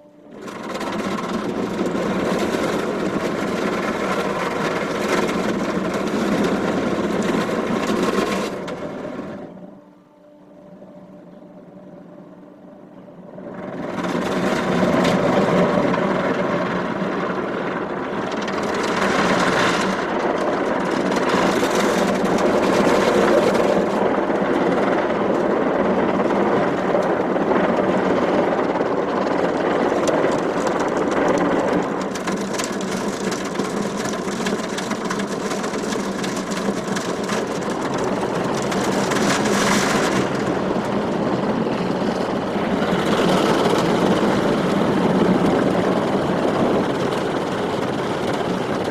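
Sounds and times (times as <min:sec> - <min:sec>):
car wash water rushing: 0:00.0 - 0:09.6, 0:13.4 - 0:48.9
machinery hum: 0:00.0 - 0:48.9.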